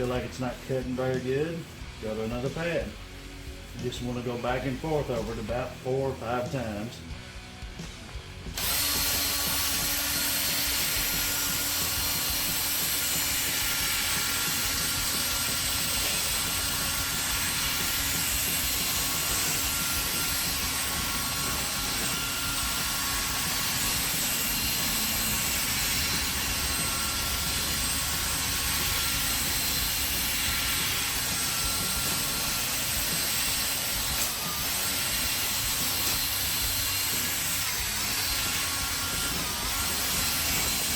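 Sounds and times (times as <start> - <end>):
electric drill sanding plastic: 8.5 - 40.9.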